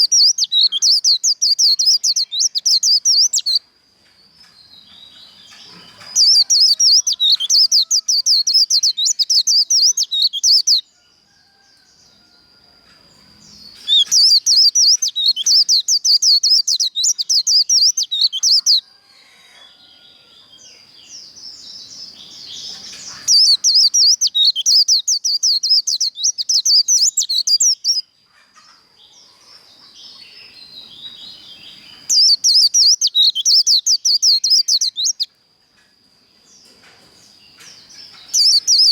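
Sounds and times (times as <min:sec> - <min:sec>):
bird singing rapid high song: 0:00.0 - 0:03.6, 0:04.3 - 0:11.0, 0:13.4 - 0:18.8, 0:20.6 - 0:28.2, 0:29.8 - 0:35.4, 0:37.3 - 0:38.9.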